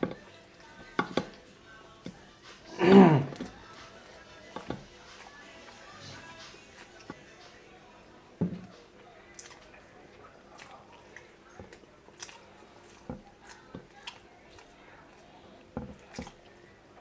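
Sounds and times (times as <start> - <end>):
chewing: 0.0 - 17.0
wet mouth squishes: 9.3 - 15.2.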